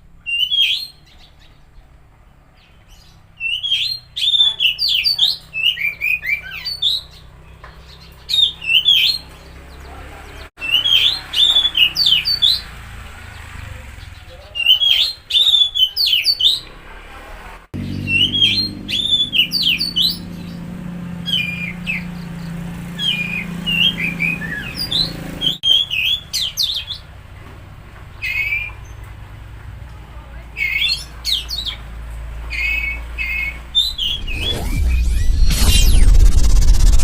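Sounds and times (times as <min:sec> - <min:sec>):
songbird whistling and chirping: 0:00.2 - 0:01.7, 0:02.6 - 0:09.8, 0:10.6 - 0:12.6, 0:14.6 - 0:16.7, 0:17.8 - 0:20.6, 0:21.3 - 0:27.0, 0:32.5 - 0:36.9
low hum: 0:33.8 - 0:37.0.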